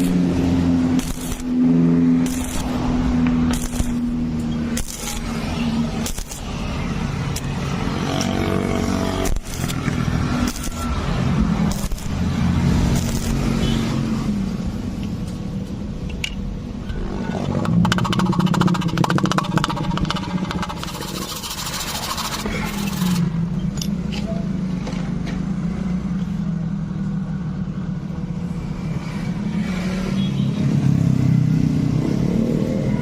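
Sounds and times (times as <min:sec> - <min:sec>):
arc welding buzz and crackle: 0:00.0 - 0:14.8, 0:18.8 - 0:23.3.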